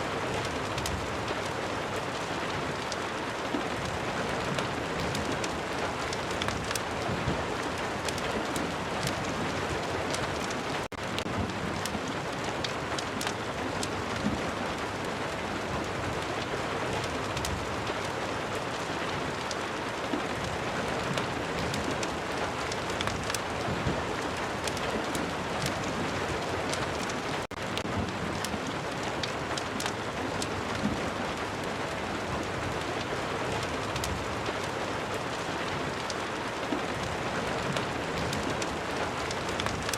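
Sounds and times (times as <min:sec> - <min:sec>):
heavy rain: 0:00.0 - 0:39.9
sharp ticks and crackles: 0:04.5 - 0:14.4, 0:18.8 - 0:31.0, 0:33.0 - 0:39.9.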